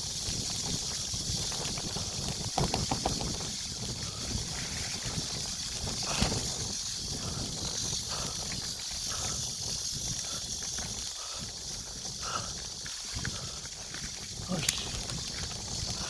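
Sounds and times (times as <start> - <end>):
mountain bike rumbling on trail: 0.0 - 16.0
high hiss: 2.8 - 15.4.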